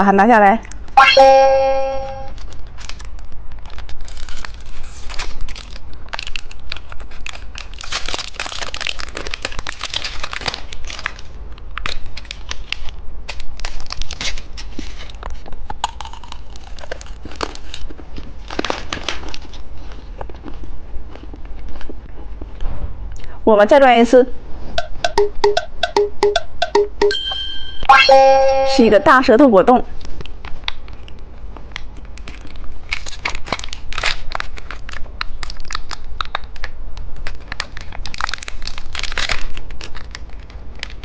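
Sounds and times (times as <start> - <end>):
plastic wrapper crinkling and tearing: 2.3 - 22.0, 30.0 - 41.0.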